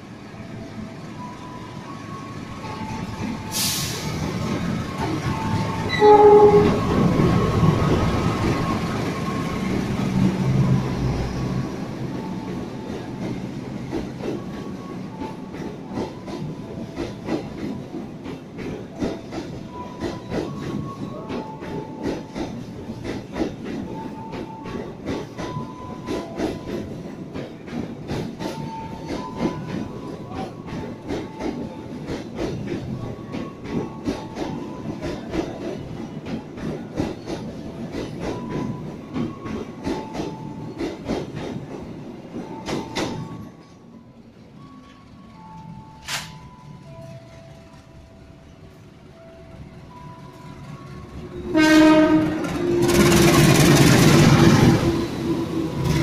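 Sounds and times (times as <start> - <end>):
diesel locomotive engine: 0.0 - 56.0
wheels clickety-clack over rail joints: 1.2 - 56.0
train horn blast: 5.8 - 6.9, 51.4 - 53.8.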